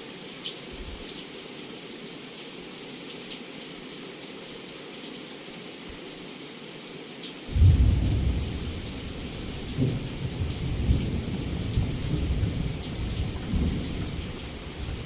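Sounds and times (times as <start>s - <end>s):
heavy rain falling: 0.0s - 15.0s
thunderclap rolling: 7.5s - 15.0s.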